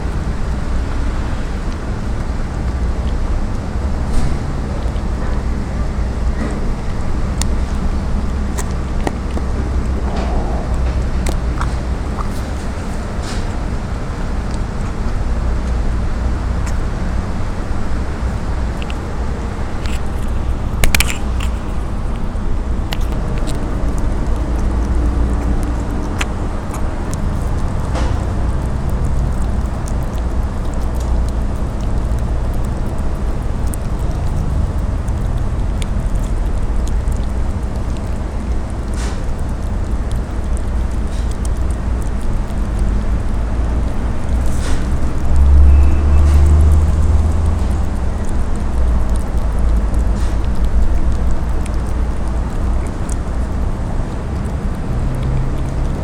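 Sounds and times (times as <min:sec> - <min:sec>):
low outdoor rumble: 0:00.0 - 0:56.0.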